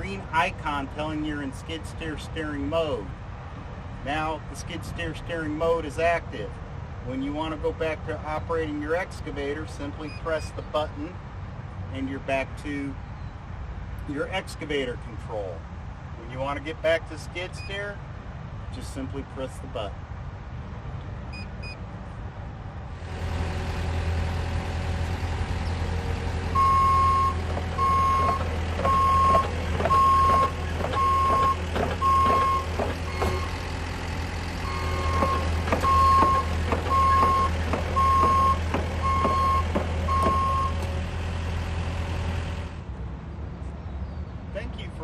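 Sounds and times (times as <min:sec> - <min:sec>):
travel alarm beeping: 0:21.3 - 0:21.8, 0:26.5 - 0:33.6, 0:34.6 - 0:40.8
excavator diesel engine: 0:22.9 - 0:42.9
rattles and clanks: 0:27.3 - 0:41.0.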